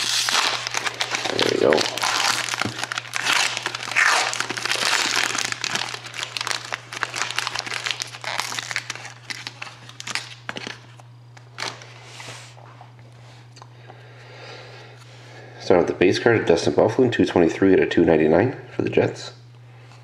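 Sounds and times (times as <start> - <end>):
plastic wrapper crinkling: 0.0 - 11.9.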